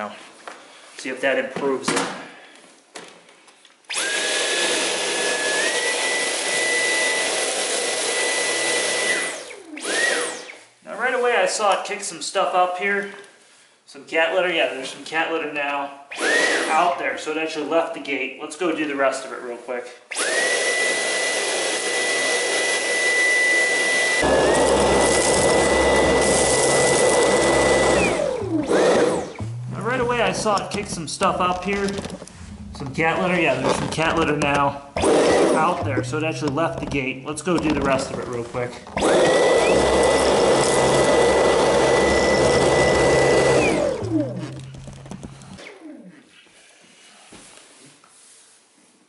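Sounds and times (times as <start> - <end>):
vacuum cleaner motor whine: 3.9 - 10.6, 16.1 - 16.7, 20.1 - 32.8, 35.0 - 36.0, 37.6 - 46.0
low rumble: 32.1 - 33.6.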